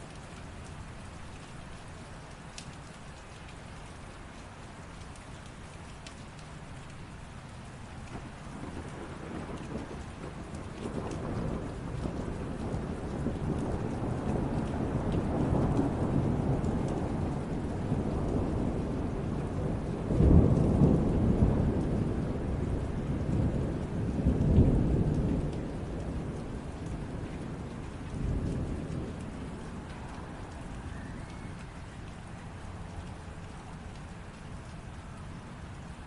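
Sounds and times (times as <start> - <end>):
steady rain: 0.0 - 36.0
rolling thunder: 8.1 - 33.7.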